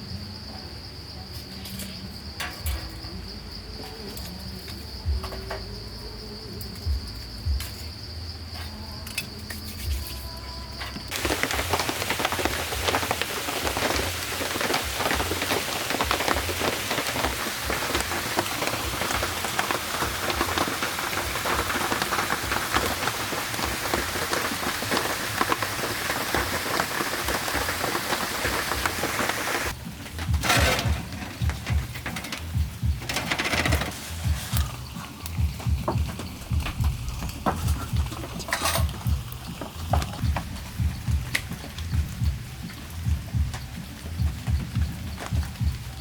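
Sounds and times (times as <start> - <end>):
heavy rain falling: 11.1 - 46.0.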